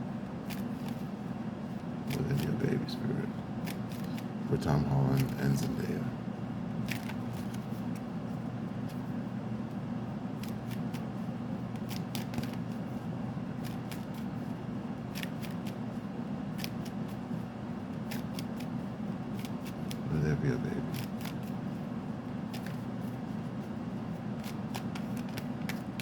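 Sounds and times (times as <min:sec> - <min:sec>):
steady low hum: 0:00.0 - 0:26.0
cards shuffling and clicking: 0:00.4 - 0:01.1, 0:02.0 - 0:02.8, 0:03.6 - 0:04.3, 0:04.9 - 0:05.8, 0:06.8 - 0:08.1, 0:10.4 - 0:12.9, 0:13.6 - 0:14.3, 0:15.1 - 0:15.9, 0:16.6 - 0:17.3, 0:18.0 - 0:21.8, 0:22.5 - 0:26.0.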